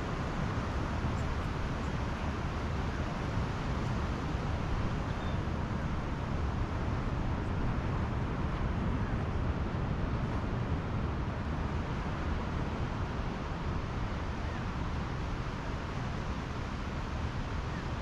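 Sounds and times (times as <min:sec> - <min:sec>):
wind: 0:00.0 - 0:18.0.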